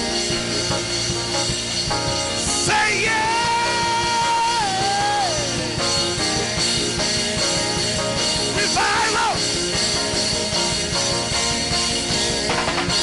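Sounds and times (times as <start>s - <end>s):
worship band music: 0.0s - 13.0s
short sung or shouted phrase: 8.6s - 9.4s.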